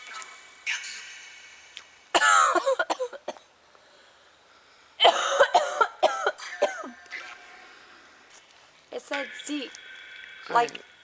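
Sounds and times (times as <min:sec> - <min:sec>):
woman coughing: 0:02.2 - 0:03.5, 0:05.0 - 0:07.0.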